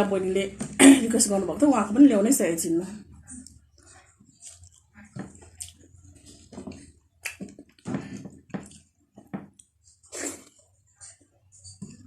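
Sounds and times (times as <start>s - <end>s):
person chewing food: 3.3s - 11.3s.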